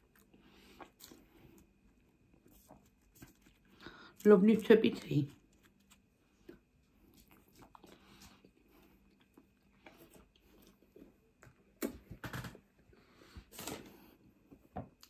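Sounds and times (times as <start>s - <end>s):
person chewing chips: 0.0s - 4.3s, 5.2s - 11.1s.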